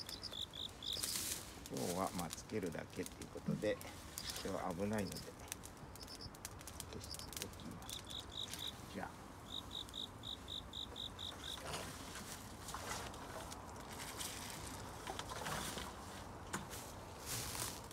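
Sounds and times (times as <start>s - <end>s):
high insect chirping: 0.0s - 1.3s, 6.0s - 6.4s, 7.0s - 8.8s, 9.4s - 11.6s
rustling: 0.0s - 17.9s
scattered clicks: 5.1s - 8.2s.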